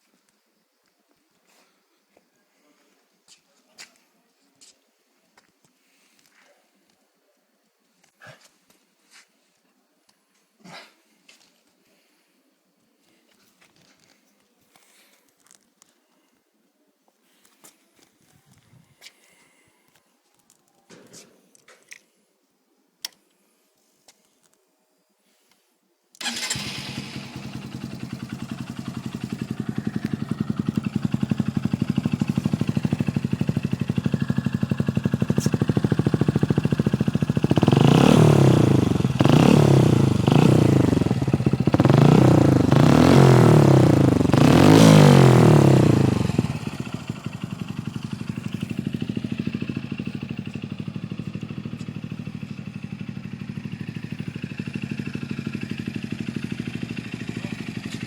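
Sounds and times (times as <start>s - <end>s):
motorcycle engine idling and revving: 26.2s - 58.0s.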